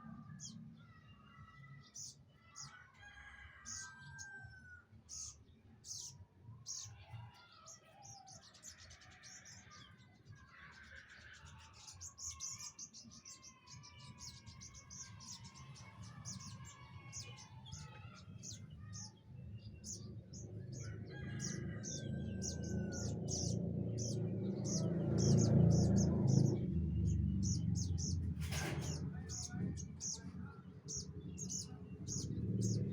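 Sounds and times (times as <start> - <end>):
birds chirping: 5.1 - 32.9
birds whistling gliding phrases: 10.6 - 32.9
low rumble: 22.0 - 32.9.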